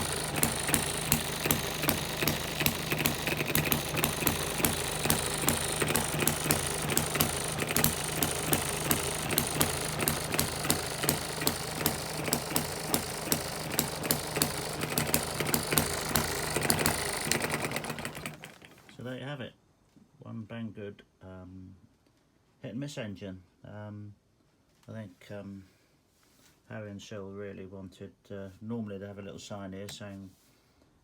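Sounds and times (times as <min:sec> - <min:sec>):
model engine clicking: 0:00.0 - 0:19.0.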